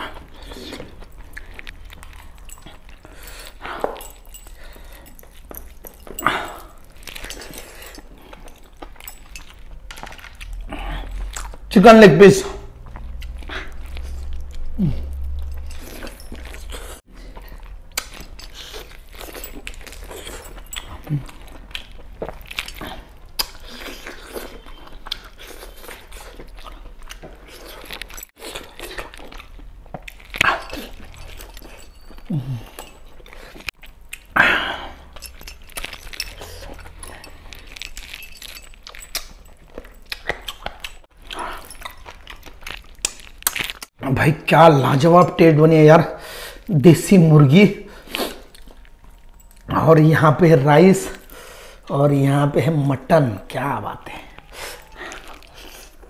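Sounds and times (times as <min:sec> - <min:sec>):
chewing and biting: 0:00.0 - 0:11.7, 0:12.6 - 0:44.0, 0:46.5 - 0:49.8, 0:52.7 - 0:56.0
wet mouth clicks: 0:12.9 - 0:26.5, 0:39.0 - 0:42.2.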